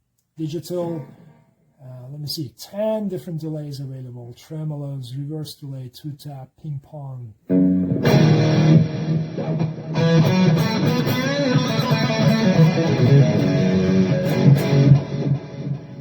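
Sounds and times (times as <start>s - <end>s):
electric guitar playing: 7.5s - 16.0s.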